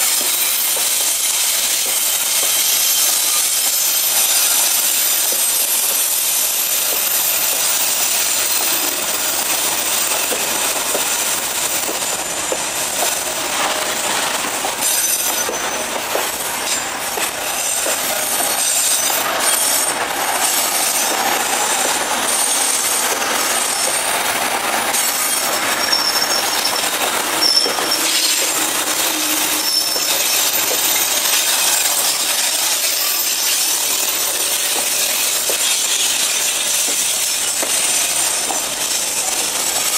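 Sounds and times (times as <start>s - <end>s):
freight train rumbling past: 0.0s - 39.9s
high wheel squeals: 0.0s - 39.9s.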